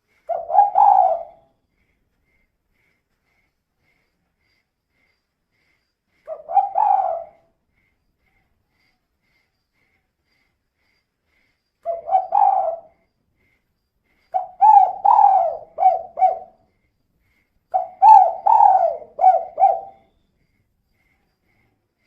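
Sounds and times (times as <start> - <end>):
dove cooing: 0.3 - 1.5, 6.3 - 7.5, 11.8 - 13.0, 14.3 - 16.6, 17.7 - 20.1.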